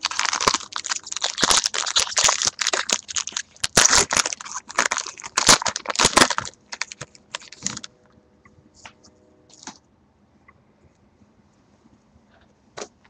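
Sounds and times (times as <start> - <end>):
packaging crinkling and tearing: 0.0 - 7.9.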